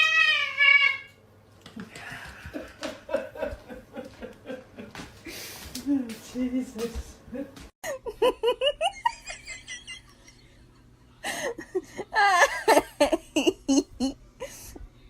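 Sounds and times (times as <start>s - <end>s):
people laughing: 1.8s - 5.1s, 7.3s - 14.2s.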